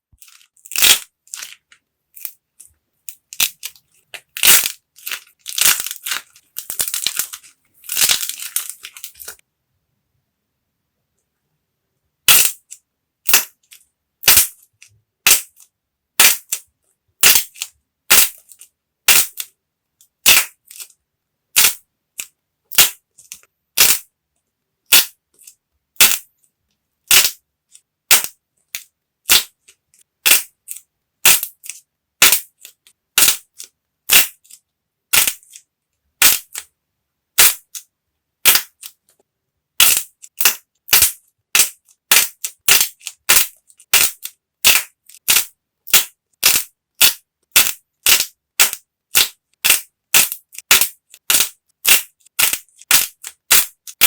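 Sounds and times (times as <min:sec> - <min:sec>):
hardened clay snapping: 0:00.1 - 0:09.4, 0:12.3 - 0:12.6, 0:15.3 - 0:16.6, 0:17.2 - 0:19.5, 0:20.2 - 0:20.9, 0:21.6 - 0:24.1, 0:27.1 - 0:27.4, 0:28.1 - 0:29.6, 0:30.2 - 0:35.6, 0:36.2 - 0:36.7, 0:37.4 - 0:37.8, 0:38.4 - 0:39.0, 0:39.8 - 0:54.0
faint crumbling crackles: 0:02.6 - 0:09.4.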